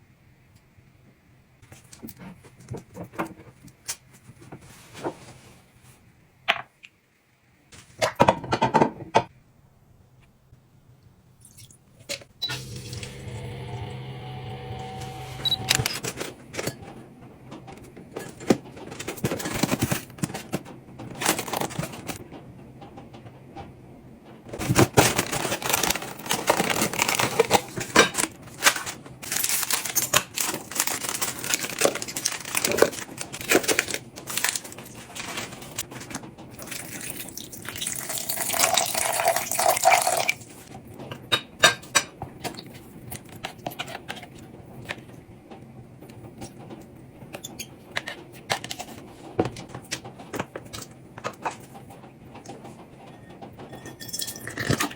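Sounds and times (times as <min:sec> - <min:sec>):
packaging rustling and crinkling: 0:18.2 - 0:22.2, 0:24.6 - 0:37.0
utensils clinking on dishes: 0:53.1 - 0:54.9.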